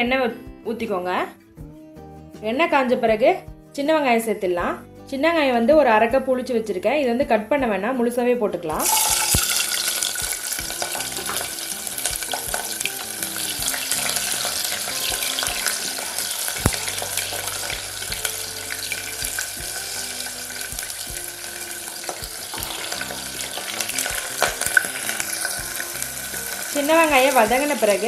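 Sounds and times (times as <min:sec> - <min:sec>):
shallots sizzling in hot oil: 0:08.7 - 0:28.0.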